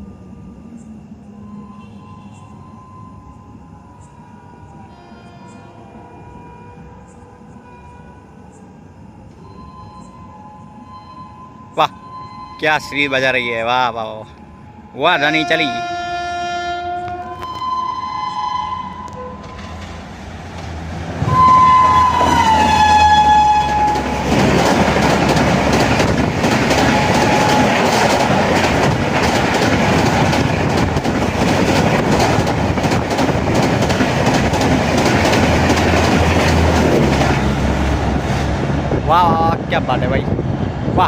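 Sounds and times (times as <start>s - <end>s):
shrill locomotive horn: 1.3s - 3.6s, 4.3s - 8.4s, 9.4s - 20.0s, 21.2s - 24.3s, 26.7s - 28.5s
train wheels clattering: 19.0s - 38.4s.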